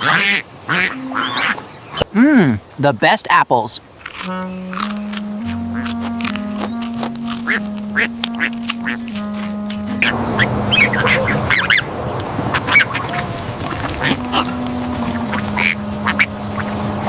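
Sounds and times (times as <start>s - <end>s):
duck quacking and honking: 0.0s - 1.6s, 4.1s - 17.0s
low background tone: 4.4s - 12.0s, 14.1s - 17.0s.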